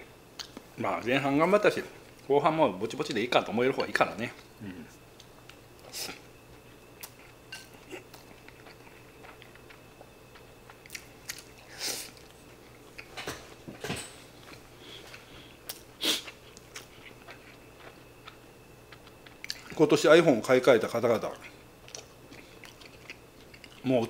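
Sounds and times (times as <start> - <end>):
man chewing food: 3.8 - 19.8, 21.2 - 23.9.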